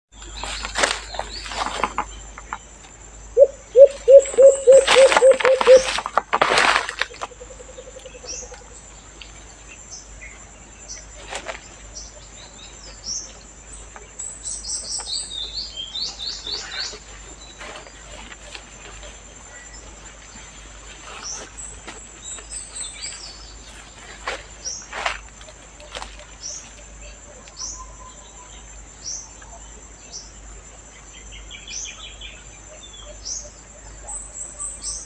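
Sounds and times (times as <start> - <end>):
small birds chirping: 0.1 - 6.0, 7.0 - 35.0
loud rustles: 0.4 - 2.2, 4.8 - 7.3
dove cooing: 3.4 - 6.0.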